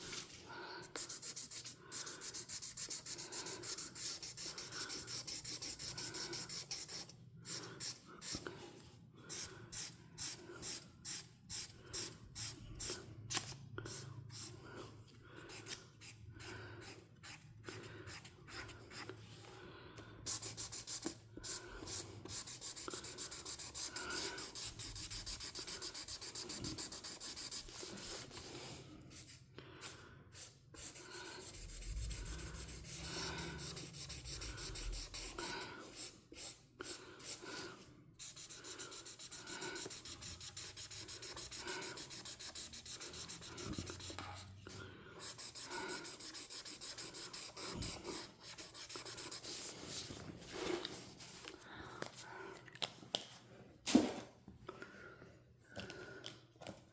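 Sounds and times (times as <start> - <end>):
coloring strokes scratching on paper: 1.0 - 8.4, 20.3 - 29.4, 30.4 - 36.6, 38.2 - 51.0.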